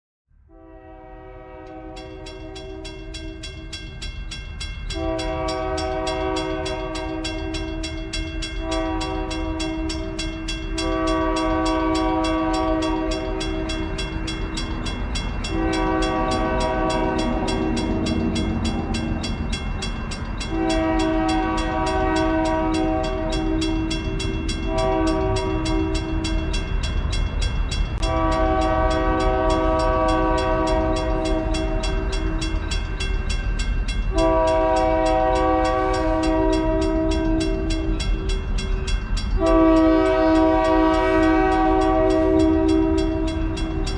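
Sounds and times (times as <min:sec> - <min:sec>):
locomotive air horn blasts: 0:00.5 - 0:03.0, 0:04.9 - 0:14.5, 0:15.4 - 0:19.3, 0:20.4 - 0:26.4, 0:28.0 - 0:32.3, 0:34.1 - 0:37.9, 0:39.4 - 0:43.9
diesel locomotive rumble: 0:01.5 - 0:43.9.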